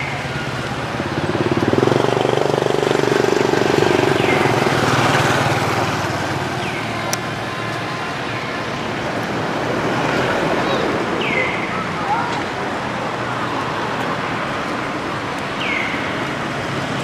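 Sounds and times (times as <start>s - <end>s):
engine running with pulsing note: 0.0s - 9.5s.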